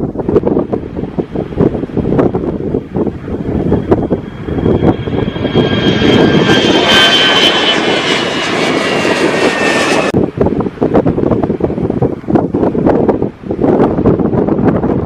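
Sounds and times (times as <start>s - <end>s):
airliner engines whining: 0.0s - 15.0s
wind noise on microphone: 0.0s - 15.0s.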